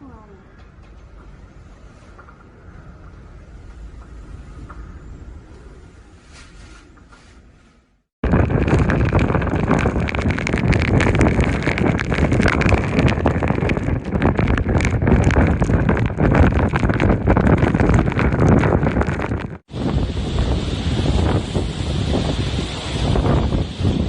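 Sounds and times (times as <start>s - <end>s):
strong wind buffeting microphone: 8.2s - 24.0s.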